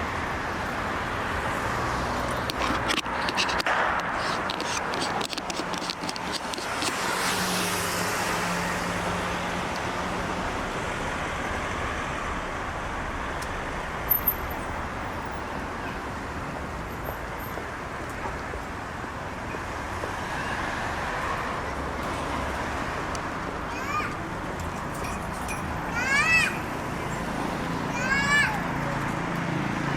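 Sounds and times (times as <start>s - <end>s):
vehicle engine hum: 0.0s - 19.2s
road traffic noise: 0.0s - 29.9s.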